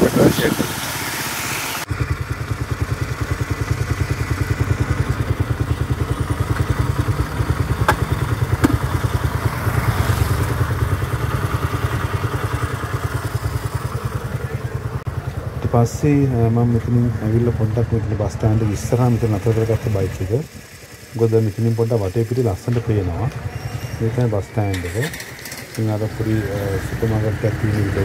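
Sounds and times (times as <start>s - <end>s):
riding and wind noise: 0.0s - 28.0s
motorcycle engine idling: 1.9s - 28.0s.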